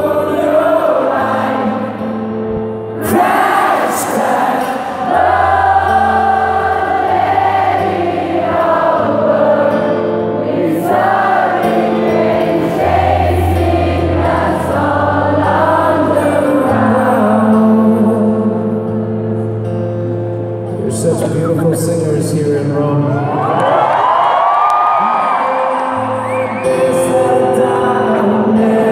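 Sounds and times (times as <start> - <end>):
person singing: 0.0 - 2.1, 2.9 - 19.2, 25.0 - 28.9.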